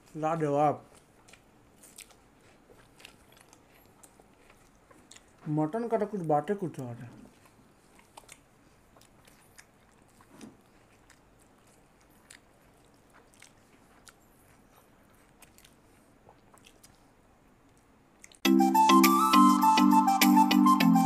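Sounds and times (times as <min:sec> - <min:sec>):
faint chewing: 0:00.0 - 0:18.5
loud music: 0:18.4 - 0:21.0.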